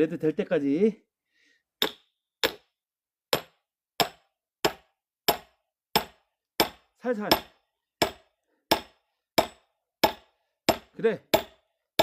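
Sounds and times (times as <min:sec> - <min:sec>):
hammer striking steel wedge: 0:01.8 - 0:02.7, 0:03.3 - 0:12.0.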